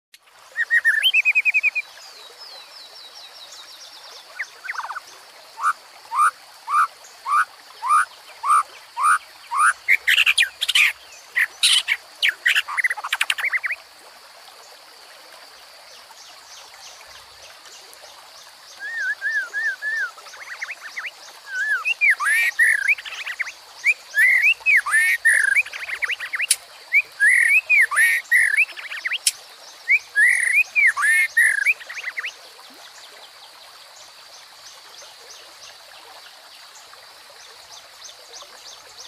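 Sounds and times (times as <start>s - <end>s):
stream babbling: 0.2s - 39.0s
songbirds singing: 0.5s - 13.8s, 16.1s - 33.3s.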